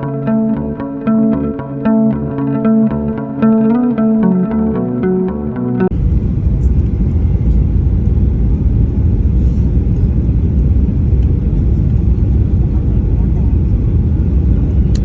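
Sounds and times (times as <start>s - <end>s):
music: 0.0s - 5.9s
jet airliner rumble: 5.9s - 15.0s.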